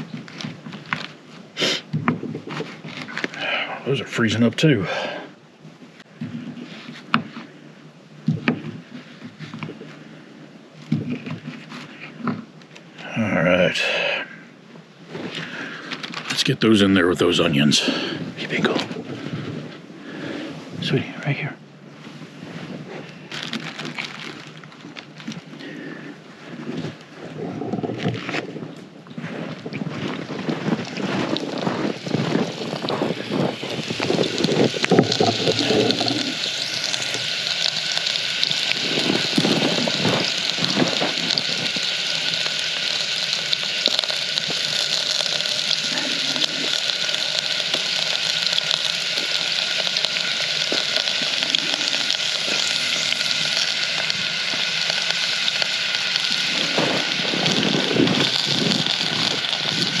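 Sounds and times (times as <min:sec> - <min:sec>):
vegetables sizzling in a pan: 0:30.4 - 1:00.0.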